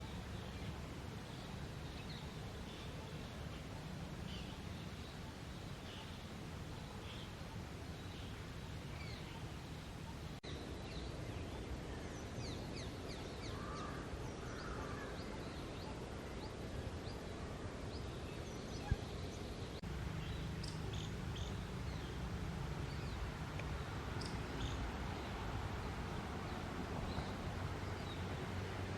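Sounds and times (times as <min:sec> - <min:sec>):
birds calling: 0:00.0 - 0:10.4, 0:19.8 - 0:28.9.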